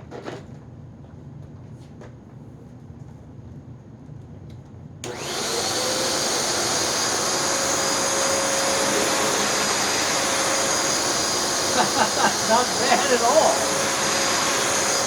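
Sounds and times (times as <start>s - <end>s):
vacuum cleaner motor whining: 5.0s - 15.0s.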